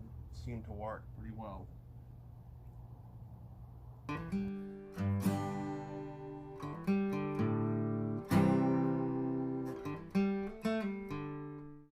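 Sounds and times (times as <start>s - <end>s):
acoustic guitar strumming chords: 4.1s - 11.9s.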